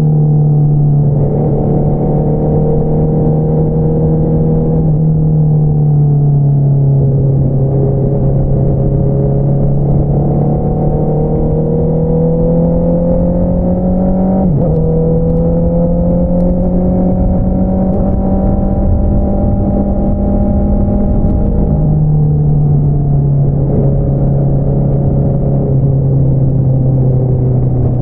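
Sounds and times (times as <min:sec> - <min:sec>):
motorcycle engine revving: 0:01.0 - 0:05.3, 0:07.0 - 0:28.0
wind rush: 0:07.0 - 0:28.0.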